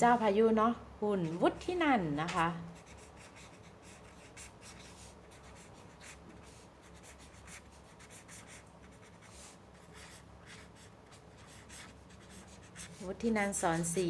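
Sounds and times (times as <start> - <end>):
pen scratching on paper: 2.8 - 14.0.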